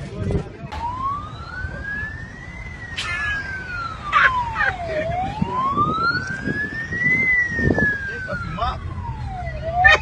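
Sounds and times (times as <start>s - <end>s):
short sharp sounds: 0.8s - 3.2s
police siren wailing: 0.8s - 10.0s.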